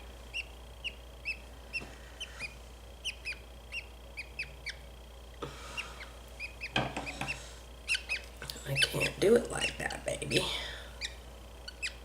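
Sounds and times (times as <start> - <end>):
bird chick chirping: 0.3 - 4.9, 5.7 - 9.9, 11.0 - 12.0.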